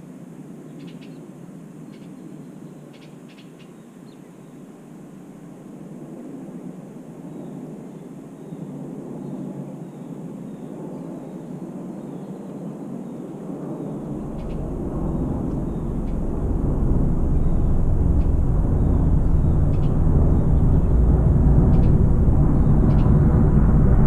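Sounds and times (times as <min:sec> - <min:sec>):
low engine rumble: 0:13.9 - 0:24.0.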